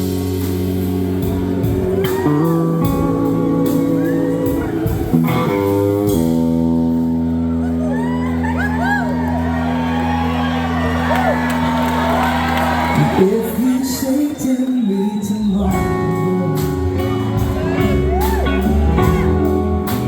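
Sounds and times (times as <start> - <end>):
electric slide guitar: 0.0 - 10.2, 15.7 - 20.0
rock band held chords: 0.0 - 13.6, 15.7 - 20.0.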